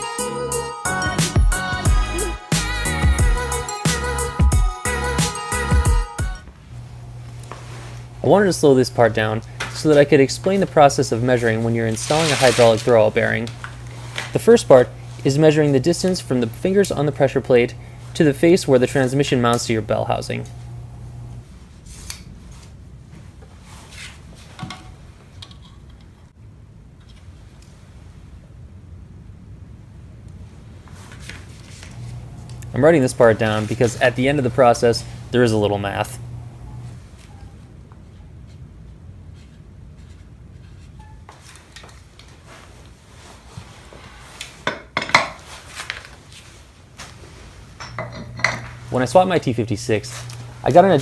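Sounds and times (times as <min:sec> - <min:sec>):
low hum: 0:06.5 - 0:12.0, 0:13.4 - 0:21.6, 0:31.8 - 0:38.2, 0:47.8 - 0:51.0
metal tools clinking and clattering: 0:47.8 - 0:48.8.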